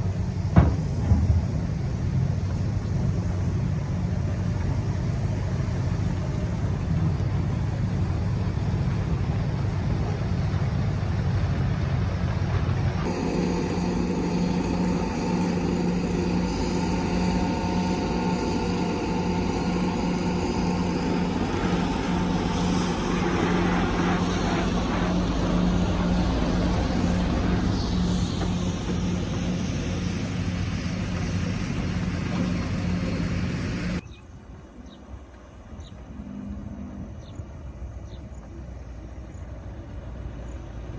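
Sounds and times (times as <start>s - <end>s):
excavator diesel engine: 0.0s - 40.9s.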